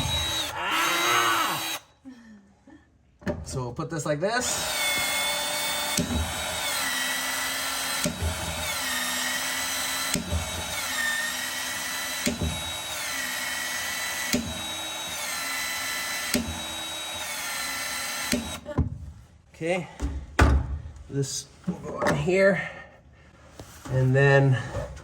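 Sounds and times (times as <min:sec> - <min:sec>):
expansion tool motor whining: 0:00.0 - 0:01.9, 0:04.4 - 0:18.6.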